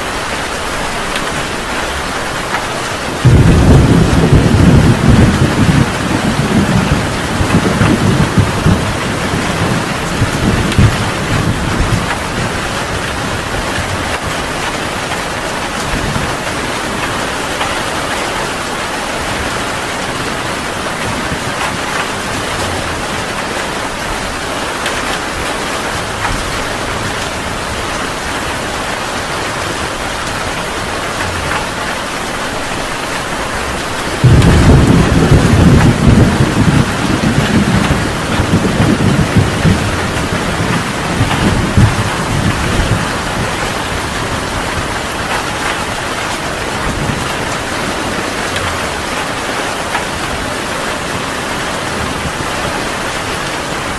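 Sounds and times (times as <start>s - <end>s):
heavy rain pouring: 0.0s - 53.9s
loud low thunder rumble: 3.1s - 14.4s, 34.0s - 46.0s.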